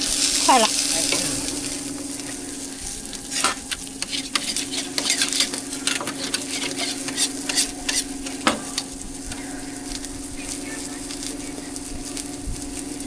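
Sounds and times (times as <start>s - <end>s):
food sizzling in a pan: 0.0s - 13.0s
steady hum: 0.0s - 13.0s
utensil scraping and tapping: 3.3s - 10.2s.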